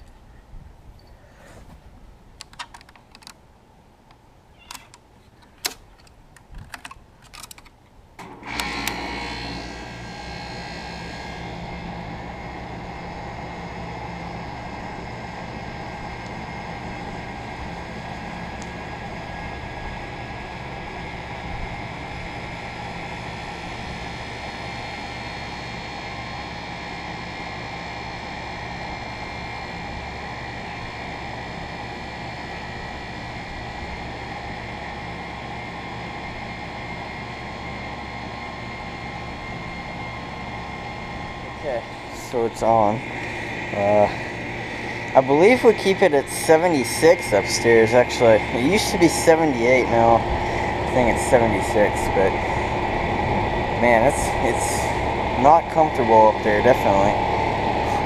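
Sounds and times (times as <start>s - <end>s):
scattered clicks: 2.4s - 3.4s, 4.1s - 7.8s
condenser fan whir: 7.9s - 58.0s
compressor hum: 8.0s - 58.0s.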